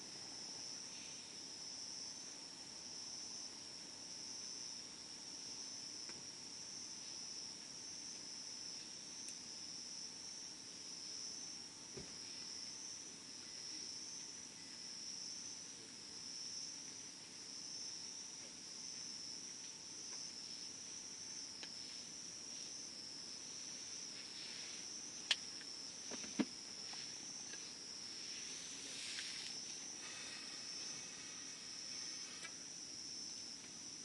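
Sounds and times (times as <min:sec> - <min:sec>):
insects chirring: 0:00.0 - 0:34.0.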